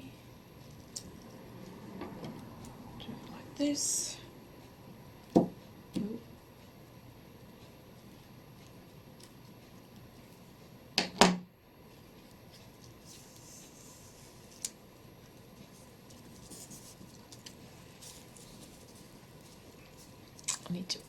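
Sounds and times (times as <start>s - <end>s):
paper rustling: 15.7s - 20.2s.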